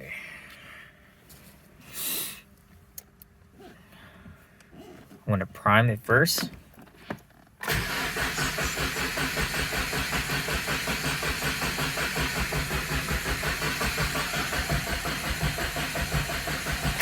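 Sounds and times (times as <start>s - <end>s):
car engine cranking on starter: 7.6s - 17.0s.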